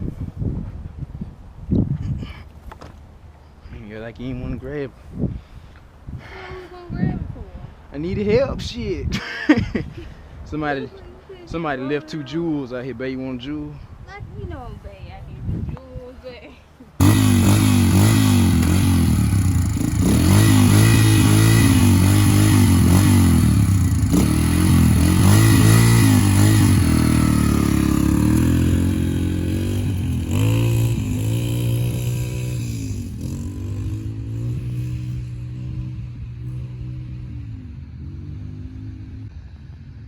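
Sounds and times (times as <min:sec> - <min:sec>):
dirt bike engine revving: 0:17.0 - 0:40.0.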